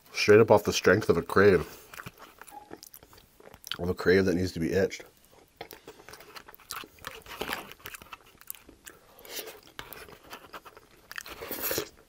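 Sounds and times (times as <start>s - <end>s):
person chewing food: 1.6s - 3.9s, 5.2s - 12.0s.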